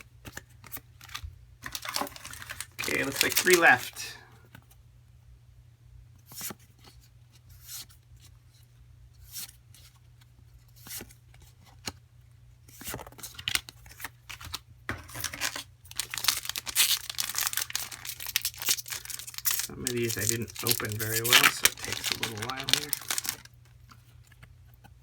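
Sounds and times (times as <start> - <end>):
foil wrappers tearing and crinkling: 0.6 - 4.1, 15.1 - 23.6.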